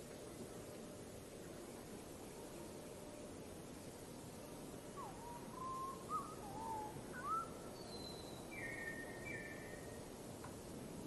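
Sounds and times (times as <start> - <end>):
background hiss: 0.0 - 11.0
bird whistled calls: 5.0 - 10.0.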